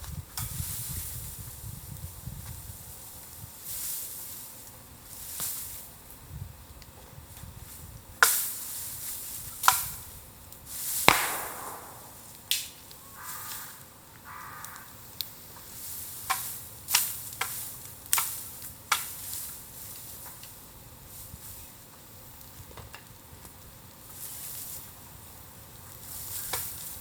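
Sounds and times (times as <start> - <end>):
bamboo crackling in a bonfire: 0.0 - 11.5, 12.2 - 13.8, 14.6 - 27.0
sharp cracks and pops: 11.1 - 13.8.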